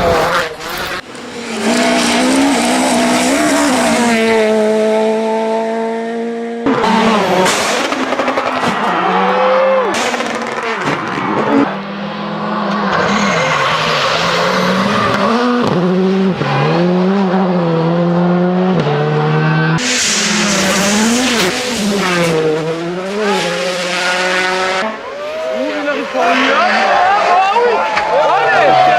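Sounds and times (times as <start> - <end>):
rally car engines revving: 0.0 - 28.9
loud hiss of noise: 19.8 - 21.8.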